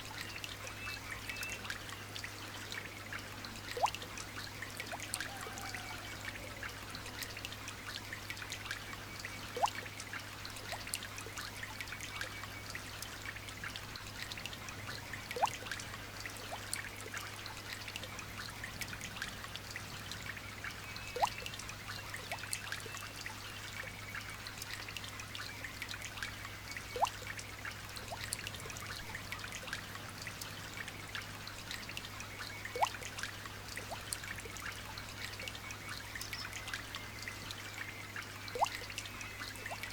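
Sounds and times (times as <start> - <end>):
light rain pattering: 0.0 - 39.9
single drip plinking: 32.7 - 33.1, 38.5 - 39.0.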